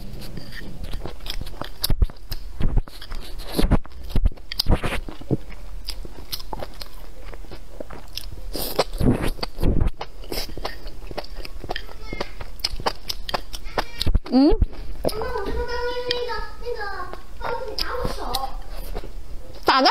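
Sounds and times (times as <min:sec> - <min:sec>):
person chewing food: 0:00.0 - 0:16.4, 0:17.0 - 0:19.7.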